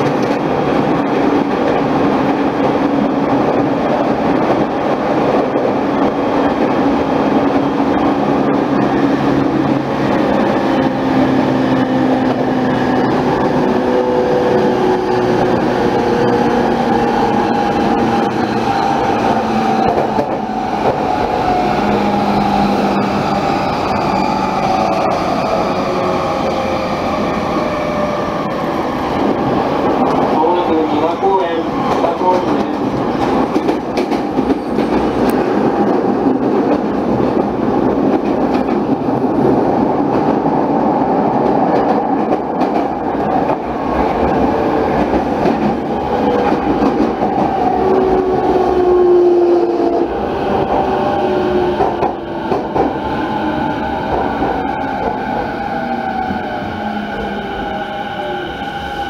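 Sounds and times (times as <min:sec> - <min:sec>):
train wheels rushing on rail: 0:00.0 - 0:59.0.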